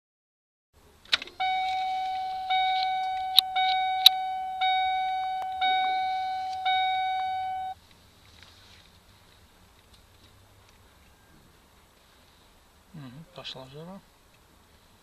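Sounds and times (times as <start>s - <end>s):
ignition key click: 1.1s - 7.8s
dashboard warning chime: 1.3s - 7.8s.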